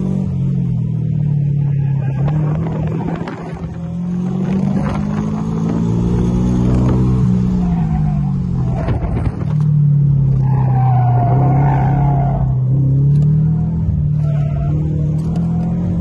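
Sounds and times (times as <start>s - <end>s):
car engine revving: 0.0s - 16.0s
wind noise on microphone: 2.2s - 7.4s, 8.4s - 9.8s.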